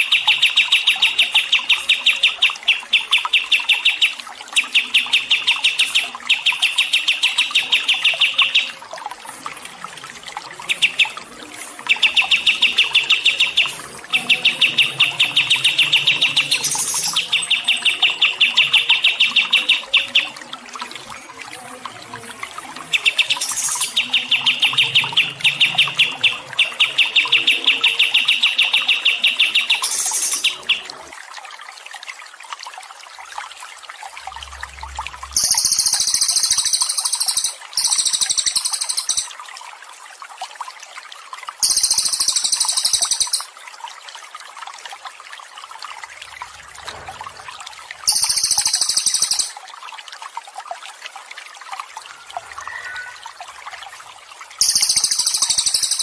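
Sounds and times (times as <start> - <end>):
water trickling: 0.0 - 56.0
high buzzy bird song phrases: 35.3 - 39.3, 41.6 - 43.5, 48.1 - 49.6, 54.6 - 56.0
songbird trill: 35.3 - 39.3, 48.1 - 49.6, 54.6 - 56.0.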